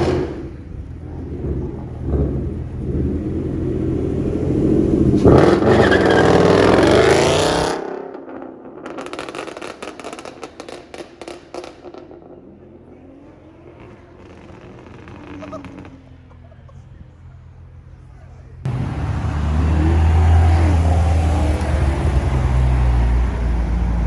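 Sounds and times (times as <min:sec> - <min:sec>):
car engine revving hard: 0:01.2 - 0:07.9, 0:18.7 - 0:24.0.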